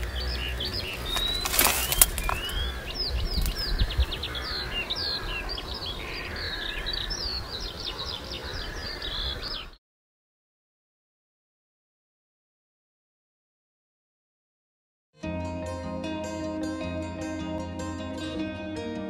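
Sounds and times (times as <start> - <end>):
birds chirping and calling: 0.0 - 9.8.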